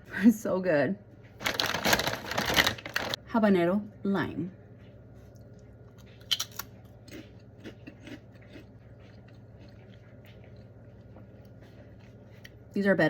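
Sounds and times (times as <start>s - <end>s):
crunchy chewing: 5.2s - 12.8s.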